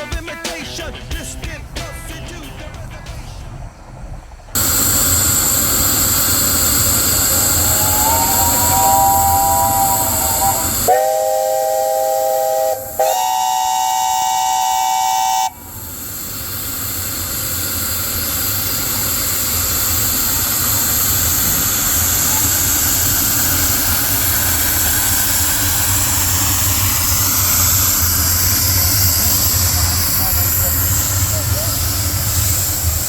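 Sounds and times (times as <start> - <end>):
steam hissing: 0.0 - 33.0
steam locomotive chime whistle: 4.6 - 16.1.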